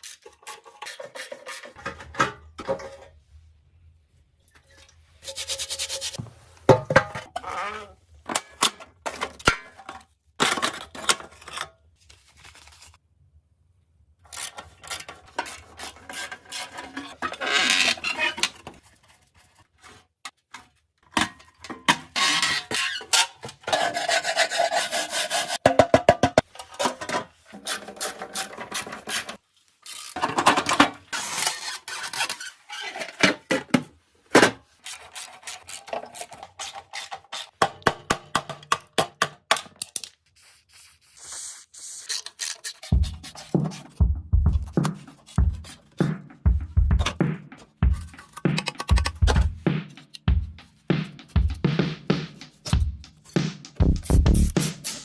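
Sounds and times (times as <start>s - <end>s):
hand tools scraping rusty metal: 0.0s - 2.1s, 5.2s - 6.2s, 14.4s - 18.6s, 22.2s - 25.6s.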